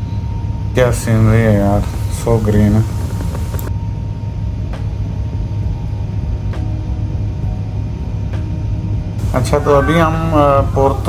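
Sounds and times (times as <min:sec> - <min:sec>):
train rumbling inside cabin: 0:00.7 - 0:03.7.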